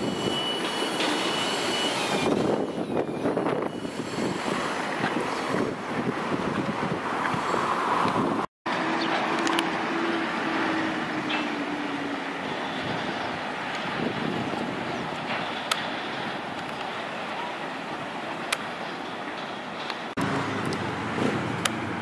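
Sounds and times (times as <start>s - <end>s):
distant freight train: 0.0s - 22.0s
wind on microphone: 2.1s - 8.5s, 12.6s - 16.6s.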